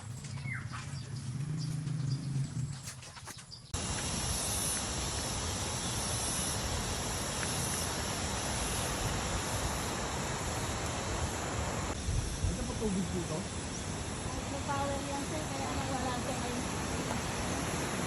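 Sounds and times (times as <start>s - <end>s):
high insect drone: 3.8s - 18.0s.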